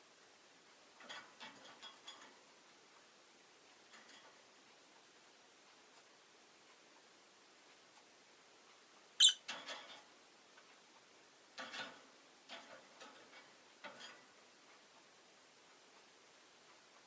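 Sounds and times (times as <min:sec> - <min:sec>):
lovebird chirps: 0:09.2 - 0:09.4
scratchy chirps and clicks: 0:09.2 - 0:09.5.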